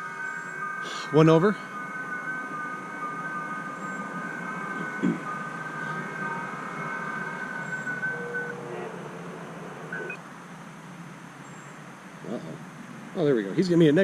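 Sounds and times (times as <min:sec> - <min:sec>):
steady pitched digital tones: 0:00.0 - 0:10.2
radio band hiss: 0:00.0 - 0:14.0.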